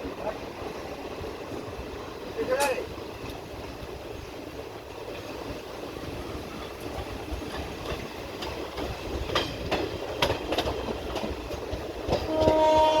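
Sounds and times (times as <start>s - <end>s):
train wheels clacking on rails: 0.0s - 13.0s.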